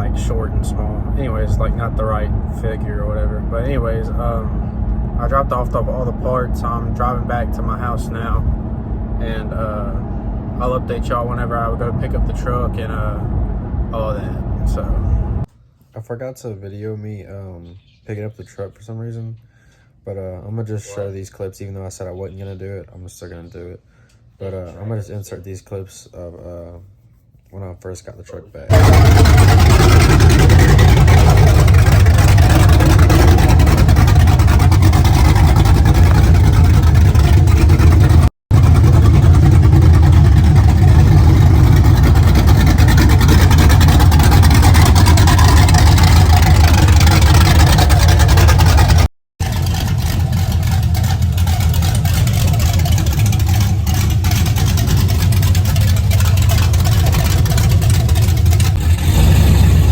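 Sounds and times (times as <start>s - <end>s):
engine rumbling: 0.0s - 15.5s, 28.7s - 59.9s.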